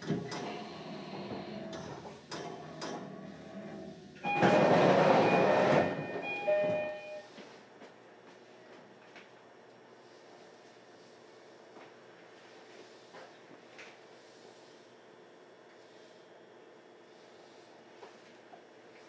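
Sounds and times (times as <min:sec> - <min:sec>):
train running noise: 0:03.6 - 0:07.2
short steady tones: 0:04.2 - 0:07.3.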